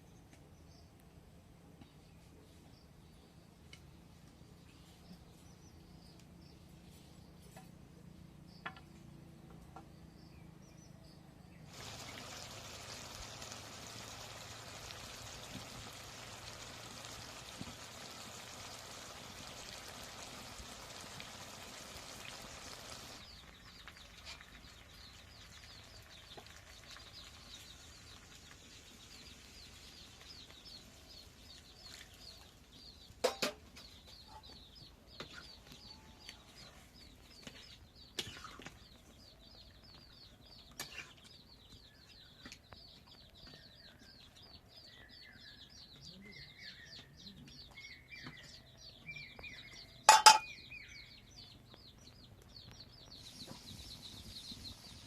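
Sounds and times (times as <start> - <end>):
steady hiss: 11.7 - 23.3
rapid high bird chirps: 47.7 - 55.0
poultry clucking: 50.1 - 50.4.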